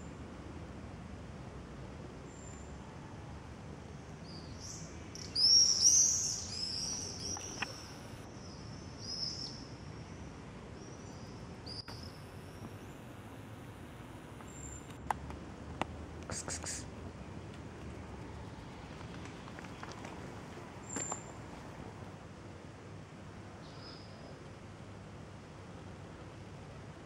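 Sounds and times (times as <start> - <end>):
outdoor background noise: 0.0 - 27.0
songbird chirping: 4.2 - 9.7, 10.8 - 15.1, 16.1 - 22.2.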